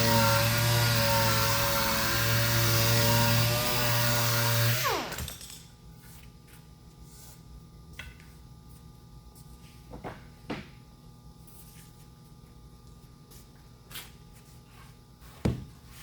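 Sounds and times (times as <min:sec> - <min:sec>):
electric sander motor spinning down: 0:00.0 - 0:05.2.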